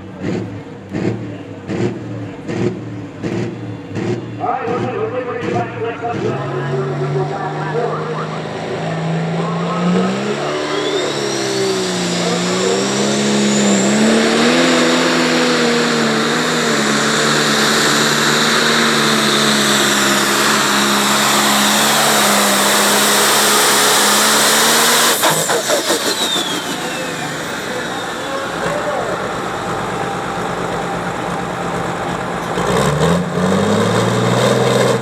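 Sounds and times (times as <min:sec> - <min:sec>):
tractor engine running flat out: 0:00.0 - 0:35.0
high whistle: 0:10.4 - 0:12.4.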